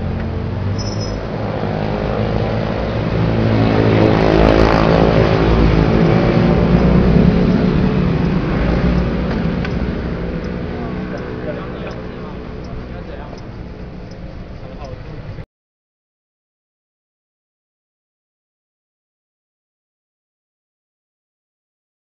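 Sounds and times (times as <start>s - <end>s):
vehicle engine running: 0.0s - 15.4s.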